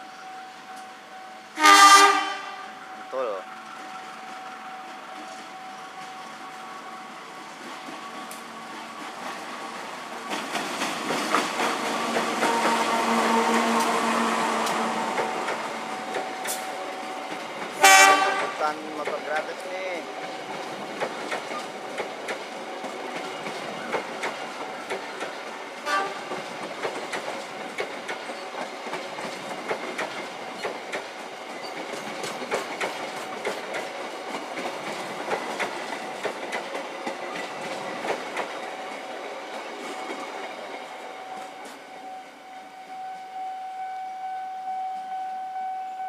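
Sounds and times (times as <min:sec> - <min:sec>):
cargo train rolling past: 0:00.0 - 0:46.0
wheels clattering over rail joints: 0:20.2 - 0:40.9.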